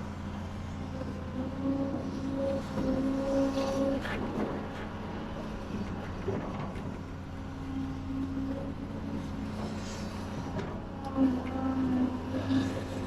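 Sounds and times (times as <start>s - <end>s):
construction machinery engine running: 0.0s - 13.0s.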